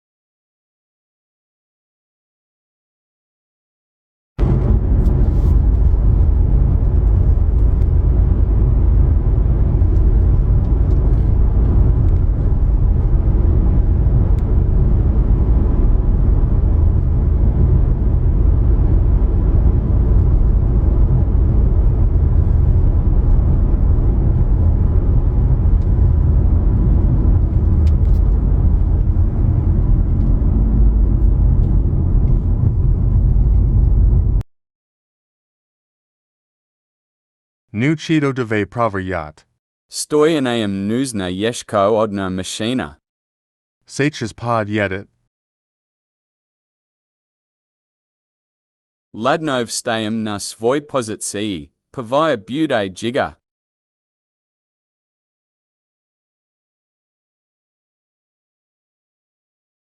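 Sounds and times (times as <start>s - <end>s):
vehicle rumbling: 4.4s - 34.4s.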